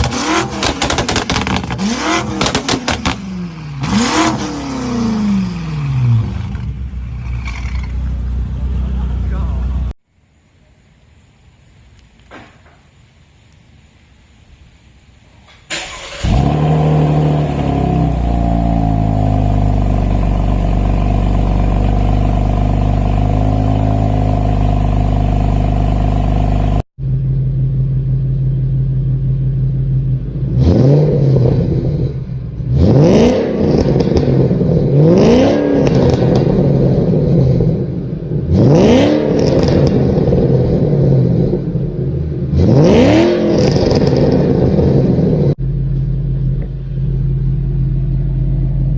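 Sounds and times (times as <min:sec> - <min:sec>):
car engine revving: 0:00.0 - 0:10.0, 0:15.8 - 0:48.9
car engine idling loudly: 0:45.2 - 0:48.9.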